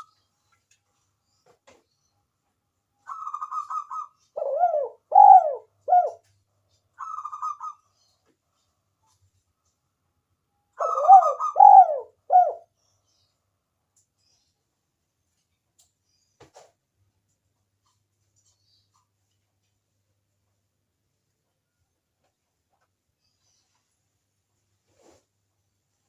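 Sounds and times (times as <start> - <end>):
dove cooing: 3.1 - 6.3, 10.8 - 12.7.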